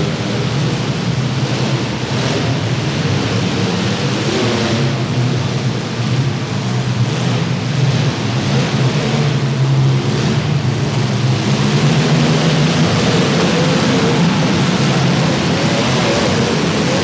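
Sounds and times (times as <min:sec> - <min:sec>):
car engines droning: 0:00.0 - 0:17.0
wash of noise: 0:10.0 - 0:17.0.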